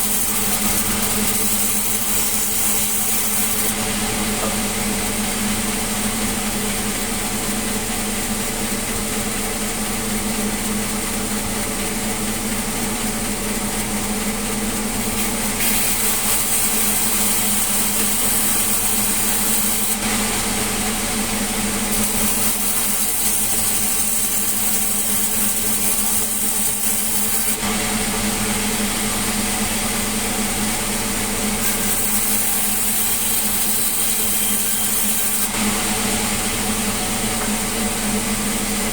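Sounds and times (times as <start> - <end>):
sawmill machinery humming: 0.0 - 38.9
saw blade hissing through timber: 15.2 - 20.0.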